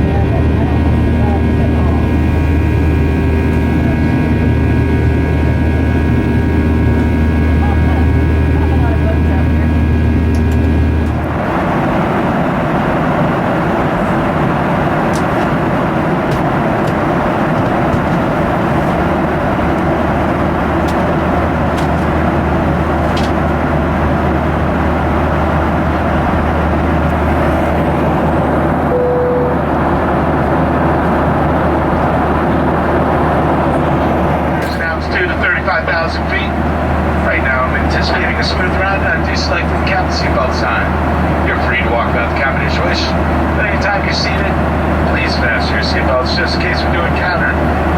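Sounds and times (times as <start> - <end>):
deep low hum: 0.0 - 11.5, 19.7 - 41.5
airplane cabin roar: 0.0 - 47.9
steady engine tones: 0.0 - 47.9
brief single tone: 28.9 - 29.7.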